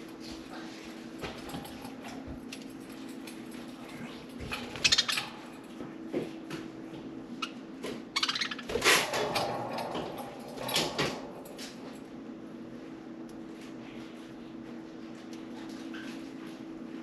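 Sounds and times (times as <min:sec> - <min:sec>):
budgerigars chirping: 0:08.2 - 0:08.7.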